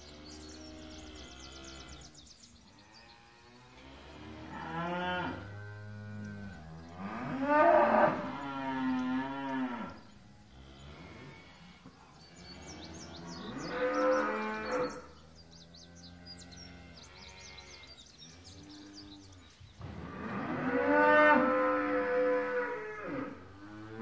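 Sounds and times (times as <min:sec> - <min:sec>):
cow mooing: 0:04.4 - 0:10.0, 0:12.8 - 0:15.0, 0:19.9 - 0:24.0.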